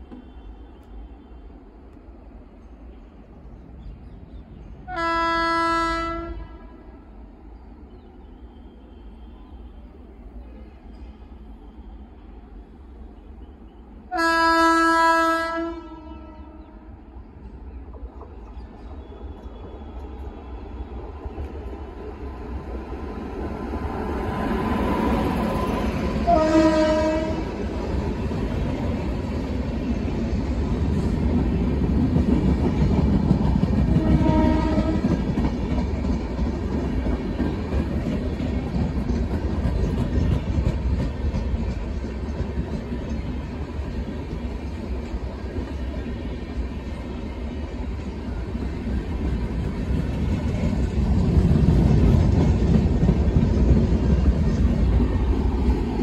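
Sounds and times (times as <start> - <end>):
train horn blasts: 4.9 - 6.9, 14.1 - 16.9, 26.2 - 27.6, 33.9 - 35.2.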